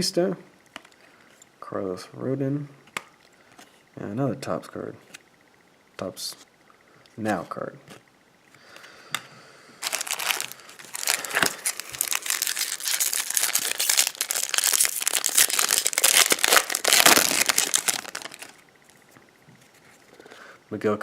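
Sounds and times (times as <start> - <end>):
foil wrapper crinkling: 9.8 - 18.6.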